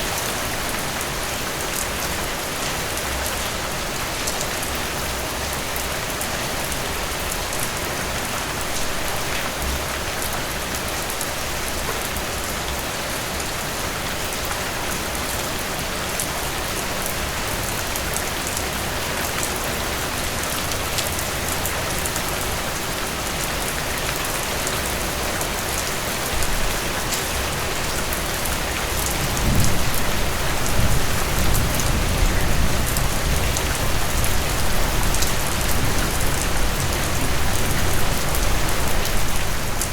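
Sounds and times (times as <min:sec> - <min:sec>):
rain falling: 0:00.0 - 0:39.9
low rumble of thunder: 0:29.1 - 0:38.6.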